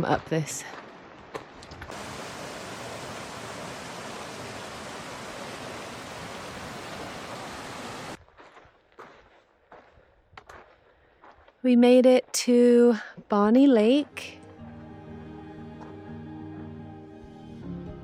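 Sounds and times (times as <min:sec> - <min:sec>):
water rushing: 0:01.9 - 0:08.2.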